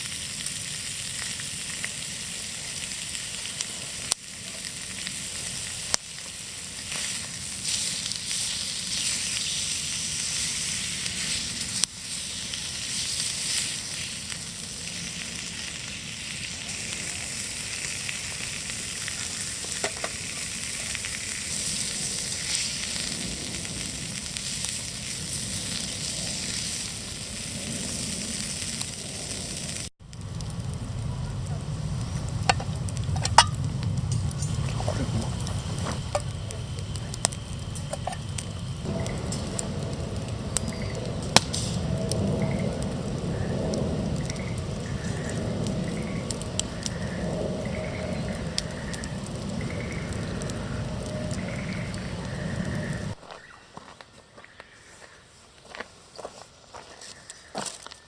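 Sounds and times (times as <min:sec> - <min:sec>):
meat sizzling on a griddle: 0:00.0 - 0:30.5, 0:35.3 - 0:53.2
low rumble with clicks: 0:28.8 - 0:53.2.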